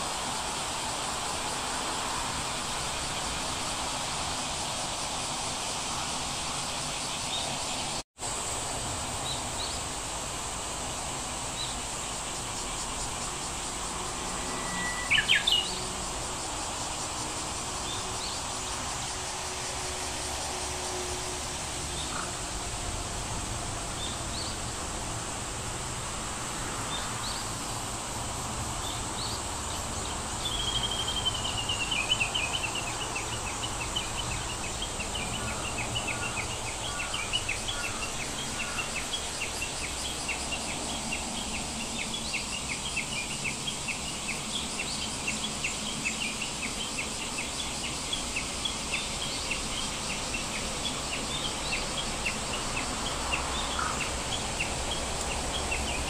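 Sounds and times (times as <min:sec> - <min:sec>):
steady hiss: 0:00.0 - 0:56.0.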